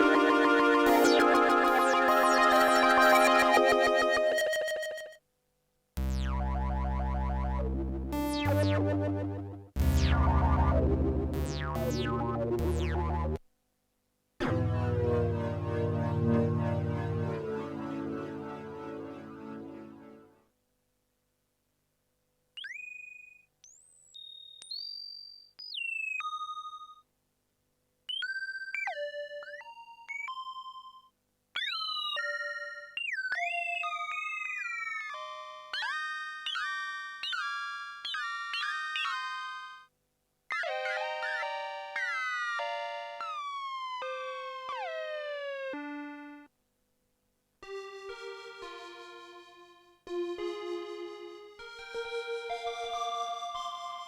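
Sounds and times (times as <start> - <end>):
synthesizer playing notes and chords: 0.0 - 4.9, 6.0 - 13.4, 14.4 - 20.3, 47.6 - 54.0
synthesizer sustained bright notes: 0.0 - 4.9, 7.4 - 13.4, 14.4 - 20.4, 50.4 - 54.0
synthesizer bleeps sliding in pitch: 6.0 - 13.4.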